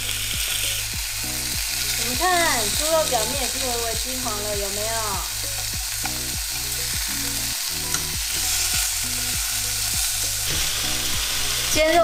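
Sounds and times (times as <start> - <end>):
background music with steady beat: 0.0 - 12.0
pork sizzling in a pan: 0.0 - 12.0.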